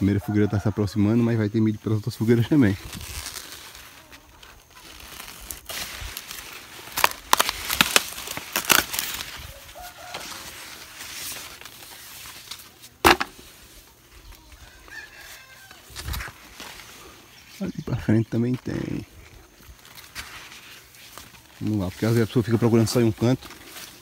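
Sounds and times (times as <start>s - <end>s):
dry corn leaves rustling: 0.0s - 24.0s
sharp crack: 5.3s - 9.3s.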